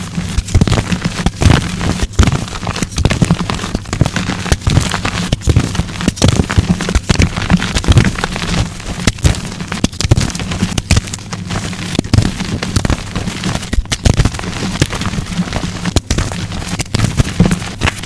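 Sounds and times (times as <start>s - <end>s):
chalk crunching and snapping: 0.0s - 18.0s.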